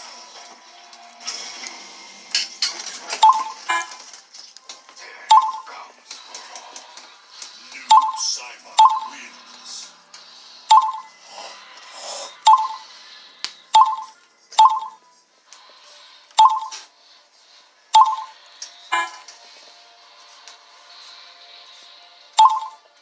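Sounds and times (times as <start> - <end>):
sharp ringing pings: 7.9 - 9.2, 13.8 - 15.0, 16.4 - 16.8, 18.0 - 18.4.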